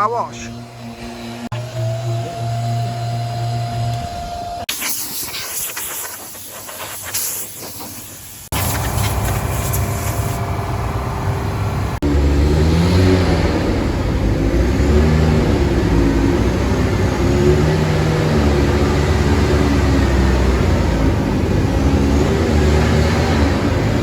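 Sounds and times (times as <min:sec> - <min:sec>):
car engine running: 0:08.6 - 0:24.0.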